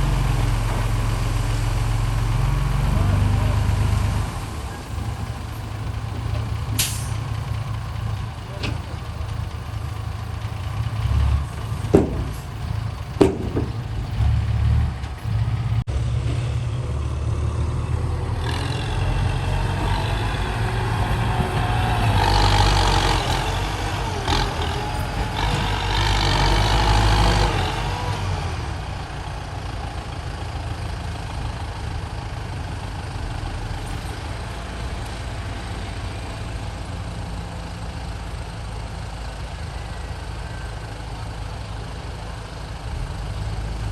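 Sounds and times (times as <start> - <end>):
dump truck diesel engine: 0.0 - 43.9
sharp knocks: 11.8 - 12.6, 13.2 - 14.4.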